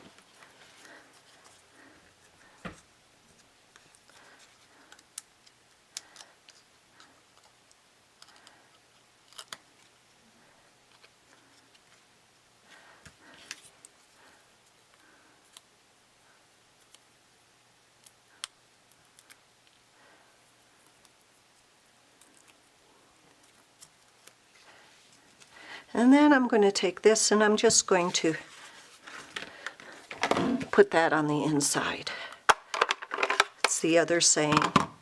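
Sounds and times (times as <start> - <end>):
paper rustling: 28.0 - 30.8.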